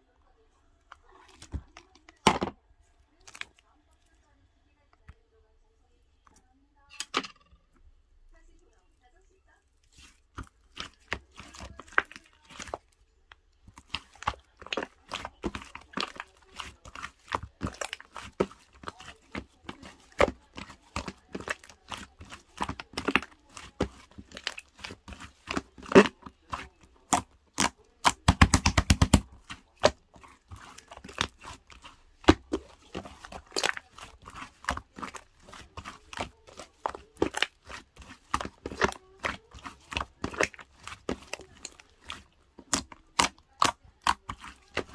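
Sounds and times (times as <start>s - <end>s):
scoop scraping frozen ice cream: 9.8s - 13.0s, 13.6s - 44.9s.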